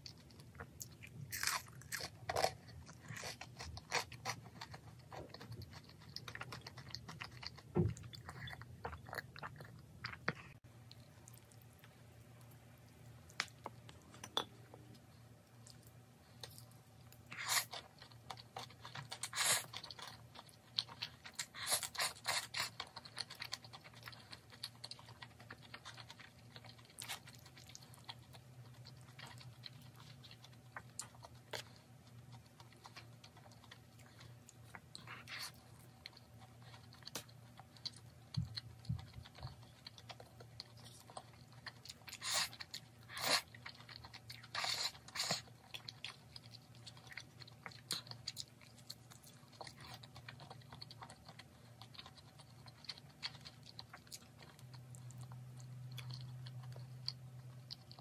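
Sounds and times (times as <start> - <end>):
chewing wet clicks and smacks: 15.5 - 58.0.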